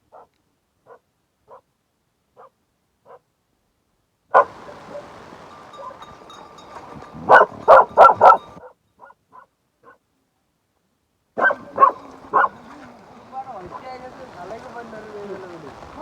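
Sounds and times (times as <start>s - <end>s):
dog barking: 0.1s - 1.7s, 2.4s - 3.2s, 4.3s - 6.1s, 7.1s - 10.0s, 11.4s - 12.6s.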